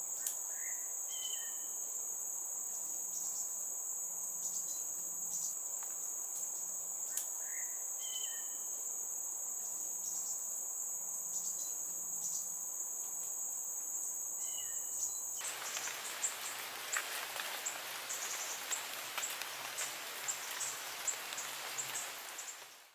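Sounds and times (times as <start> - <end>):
light ticks and rustles: 5.4 - 7.4, 15.4 - 22.9
bird calling: 15.4 - 22.9.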